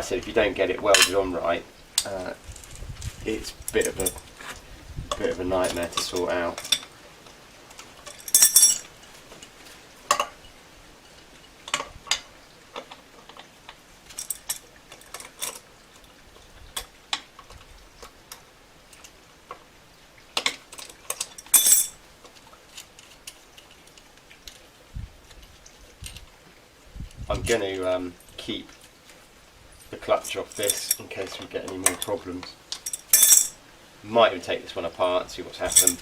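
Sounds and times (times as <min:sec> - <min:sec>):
metal tools clinking: 0:00.9 - 0:01.3, 0:03.6 - 0:04.3, 0:05.1 - 0:06.9, 0:08.0 - 0:09.0, 0:14.1 - 0:15.6, 0:20.7 - 0:22.0, 0:29.7 - 0:33.6, 0:35.6 - 0:36.0.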